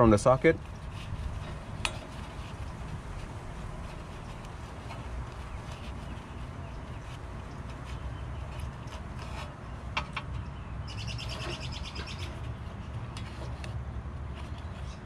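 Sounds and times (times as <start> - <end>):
bird chirping trill: 9.6 - 12.8.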